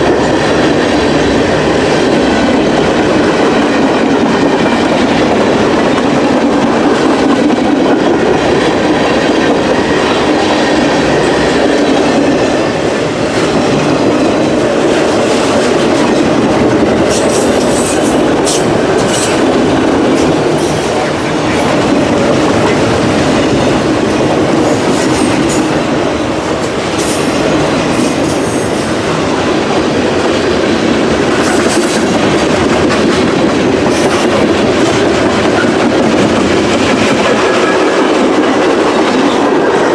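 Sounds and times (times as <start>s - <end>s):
freight train rumbling: 0.0s - 39.9s
wheels clacking over rails: 0.0s - 39.9s.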